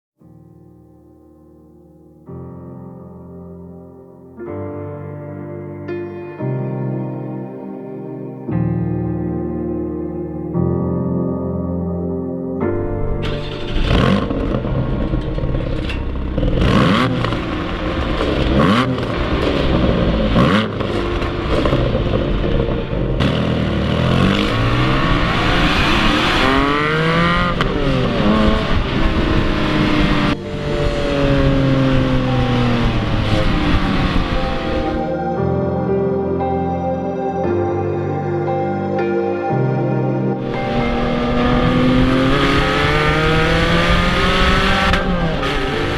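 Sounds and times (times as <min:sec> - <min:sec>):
car engine starting: 0:12.7 - 0:35.1, 0:40.4 - 0:45.9
car engine revving: 0:12.8 - 0:35.1, 0:40.4 - 0:45.9.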